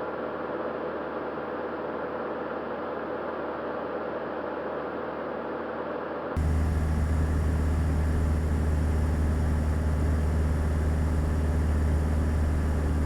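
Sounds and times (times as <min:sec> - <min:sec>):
propeller plane engine drone: 0:06.4 - 0:13.0.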